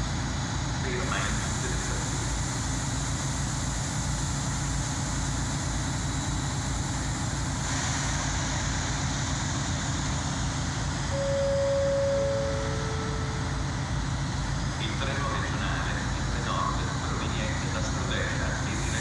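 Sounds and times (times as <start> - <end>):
train rumbling: 0.0 - 19.0
train hissing: 18.6 - 19.0.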